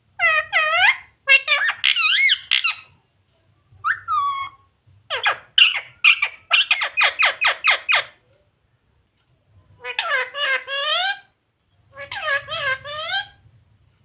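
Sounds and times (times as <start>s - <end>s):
parrot squawking: 0.2s - 3.0s, 3.8s - 8.2s, 9.8s - 11.3s, 11.9s - 13.4s.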